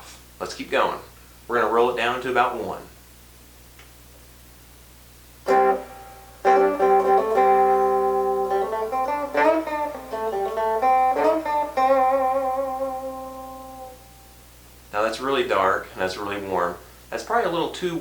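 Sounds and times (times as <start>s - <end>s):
faint amp hum: 0.0s - 18.0s
clean electric guitar riff: 5.4s - 14.4s.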